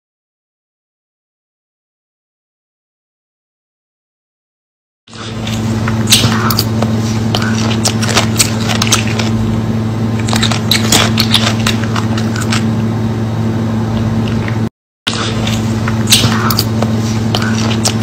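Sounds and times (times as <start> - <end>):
person chewing food: 5.1 - 9.4, 10.2 - 12.9, 13.9 - 18.0
steady low hum: 5.1 - 18.0.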